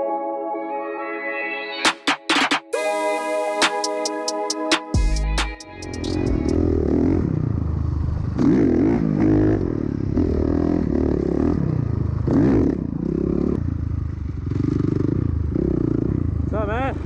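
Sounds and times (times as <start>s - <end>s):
vehicle engine revving: 6.2s - 17.0s.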